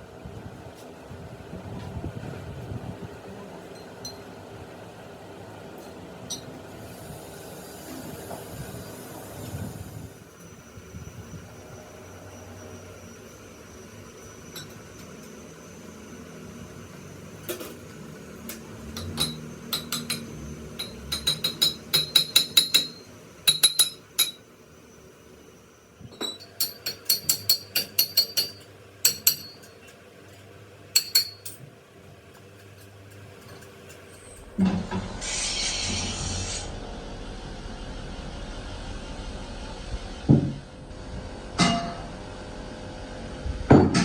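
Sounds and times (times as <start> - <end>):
hammer striking steel: 19.0 - 24.4, 26.2 - 29.7, 31.0 - 31.6, 41.6 - 42.2, 43.7 - 44.0.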